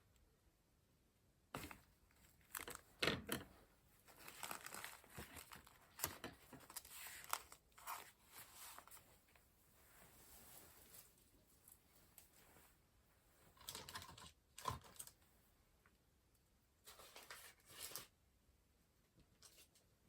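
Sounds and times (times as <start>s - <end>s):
paper rustling and crinkling: 1.6s - 12.8s, 16.8s - 18.2s.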